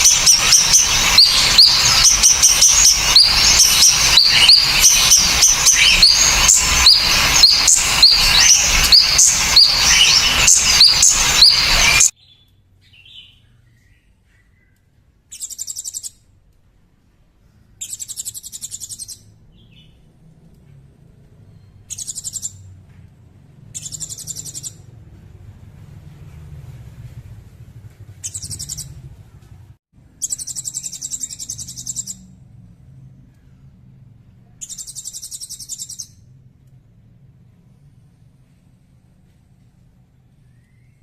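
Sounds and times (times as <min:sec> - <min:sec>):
high buzzy bird trills: 0:00.0 - 0:13.4, 0:23.8 - 0:24.8
songbird chirping: 0:00.0 - 0:16.3, 0:17.4 - 0:22.8, 0:23.5 - 0:24.9, 0:28.0 - 0:29.5, 0:30.1 - 0:32.4, 0:34.6 - 0:36.8
faint low hum: 0:00.0 - 0:41.0.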